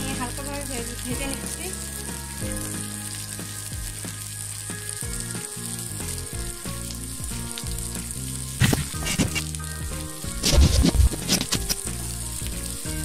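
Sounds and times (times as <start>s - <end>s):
food sizzling in oil: 0.0s - 13.0s
spatula scraping a pan: 8.6s - 9.5s, 10.4s - 11.9s.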